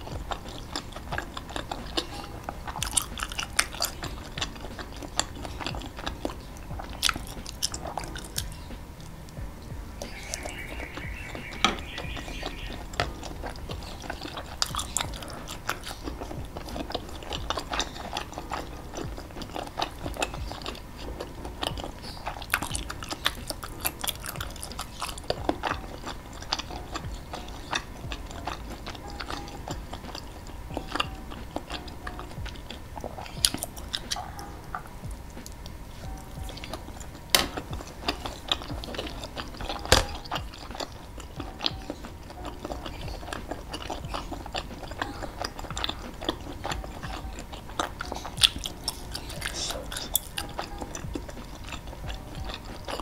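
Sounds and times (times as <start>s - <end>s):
person chewing: 0.0s - 53.0s.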